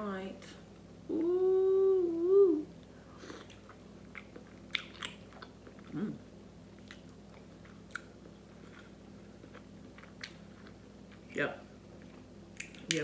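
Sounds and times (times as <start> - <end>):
person humming low: 1.1 - 2.7
wet chewing mouth sounds: 3.4 - 6.1.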